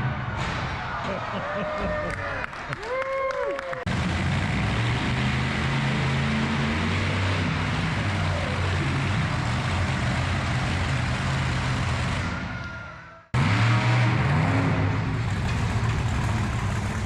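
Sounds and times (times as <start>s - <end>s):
vehicle engine running: 3.8s - 12.5s, 13.4s - 17.0s.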